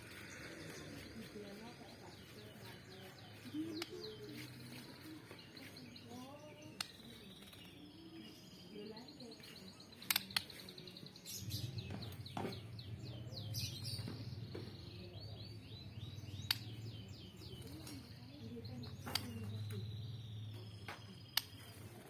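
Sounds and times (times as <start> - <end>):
songbirds chirping: 0.0 - 22.0
sharp clicks: 10.0 - 10.7, 16.3 - 16.9, 19.0 - 19.8.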